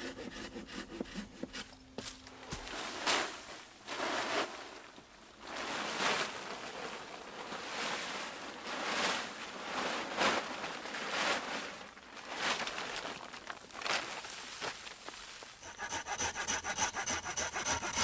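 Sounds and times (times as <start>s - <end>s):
hand saw cutting wood: 0.0s - 2.7s, 15.6s - 18.0s.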